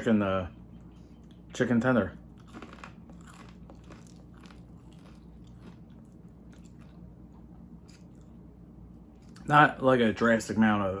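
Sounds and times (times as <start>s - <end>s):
person chewing: 2.2s - 8.5s
faint crunches: 2.4s - 5.8s.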